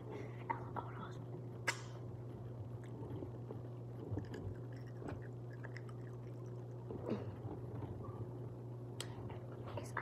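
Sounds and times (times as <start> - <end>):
steady low hum: 0.0 - 10.0
child chewing: 2.7 - 7.5.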